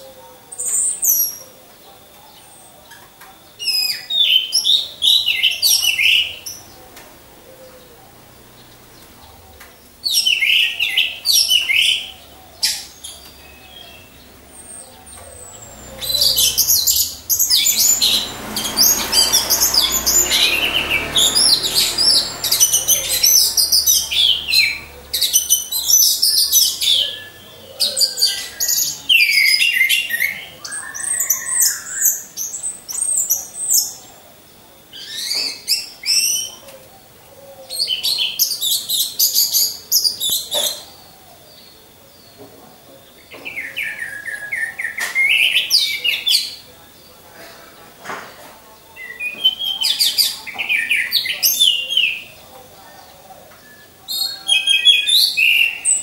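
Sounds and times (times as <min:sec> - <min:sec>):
thrushes singing: 0:00.0 - 0:56.0
soft rushing noise: 0:15.3 - 0:25.1.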